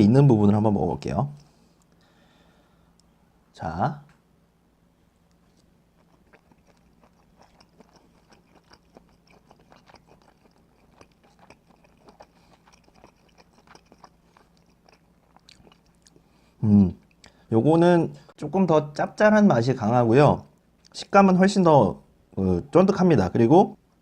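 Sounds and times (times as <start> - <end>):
steady low hum: 0.0 - 24.0
person chewing with wet smacks: 5.2 - 16.4, 17.0 - 17.4.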